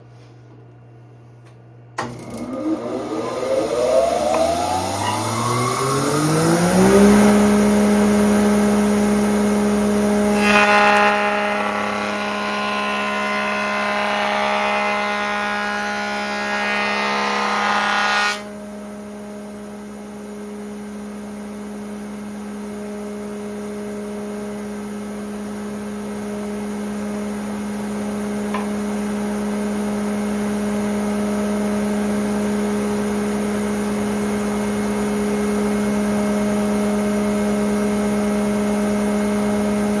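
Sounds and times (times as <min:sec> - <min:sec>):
woodworking machine motor running: 0:02.0 - 0:40.0
cutterhead cutting wood board: 0:10.3 - 0:18.5.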